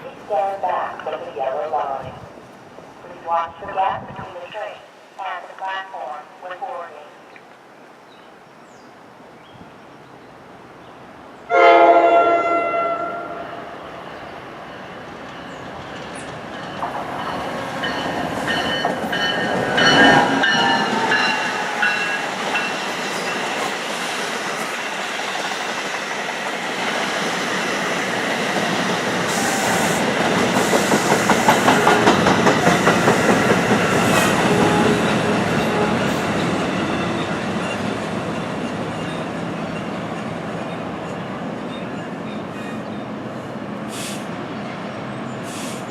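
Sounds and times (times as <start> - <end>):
electric train rumble: 11.5 - 45.9
wheels clacking on rail joints: 14.7 - 23.8, 30.1 - 40.3.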